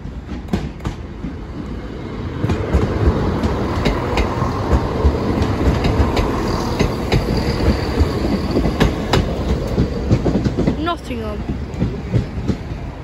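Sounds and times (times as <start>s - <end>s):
train rumble: 0.0s - 13.0s
train wheels clicking: 0.0s - 13.0s.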